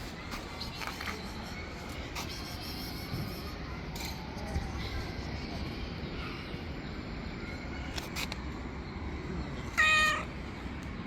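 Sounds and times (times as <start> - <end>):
cat meowing: 9.7 - 10.3.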